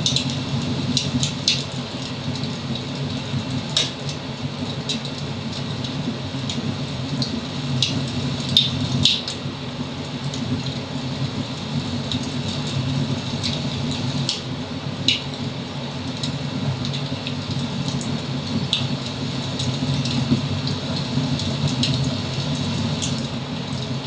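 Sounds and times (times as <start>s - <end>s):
wood fire crackling: 0.0s - 24.0s
sharp pops from fire: 3.7s - 4.2s, 7.8s - 9.4s.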